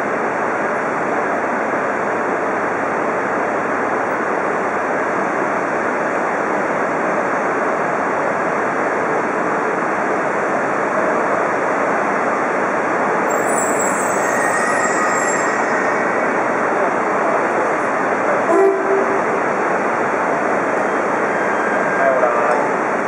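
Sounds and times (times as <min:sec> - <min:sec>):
train hissing and rumbling: 0:00.2 - 0:23.0
faint high-pitched squeal: 0:13.3 - 0:16.4.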